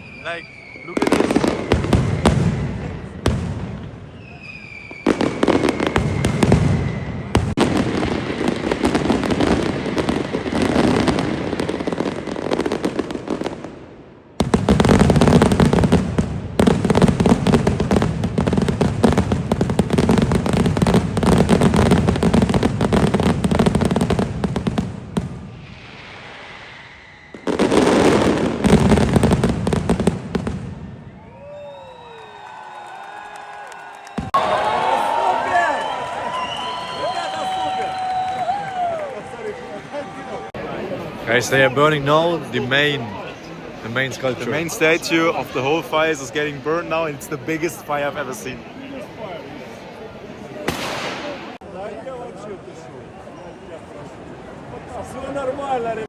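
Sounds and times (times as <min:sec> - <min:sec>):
firework whistling: 0:00.0 - 0:13.5, 0:14.4 - 0:32.6, 0:34.0 - 0:40.4
firecrackers crackling: 0:00.0 - 0:40.6, 0:50.6 - 0:52.0.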